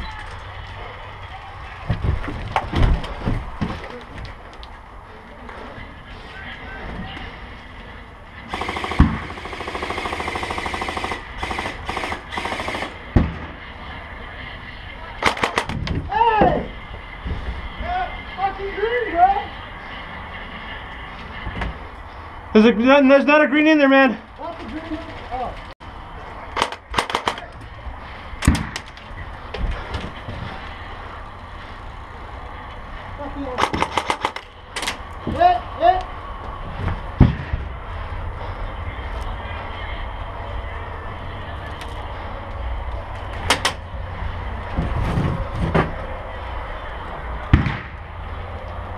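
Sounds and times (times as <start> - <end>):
steady low rumble: 0.0 - 22.8, 24.2 - 48.9
airsoft rifle firing bursts: 8.5 - 13.0.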